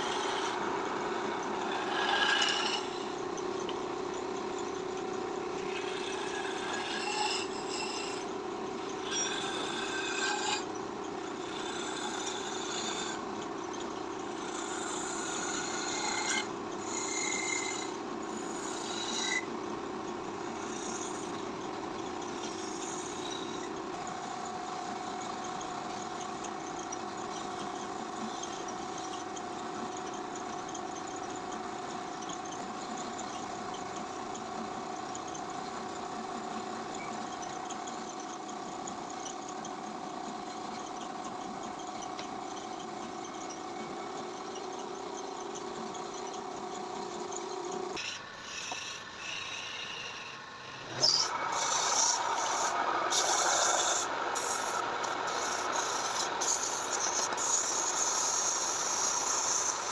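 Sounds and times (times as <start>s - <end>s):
power tool motor humming: 47.9s - 59.9s.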